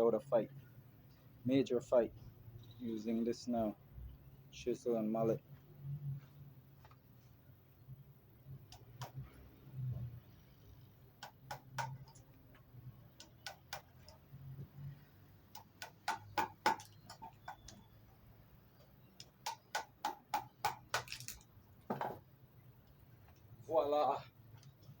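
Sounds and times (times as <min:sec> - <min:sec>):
mallet striking wood chisel: 0:15.5 - 0:17.8, 0:19.3 - 0:21.1.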